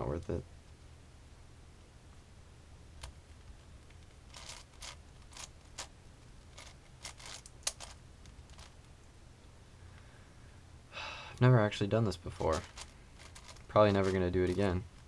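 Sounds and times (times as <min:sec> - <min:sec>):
plastic puzzle cube clicking: 0:03.8 - 0:05.9, 0:06.5 - 0:08.8, 0:12.4 - 0:15.0.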